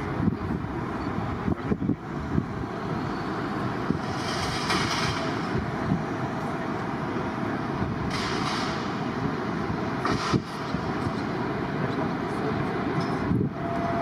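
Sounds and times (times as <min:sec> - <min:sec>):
wind buffeting microphone: 0:00.0 - 0:06.3, 0:13.2 - 0:14.0
jet engines rumbling: 0:00.0 - 0:14.0.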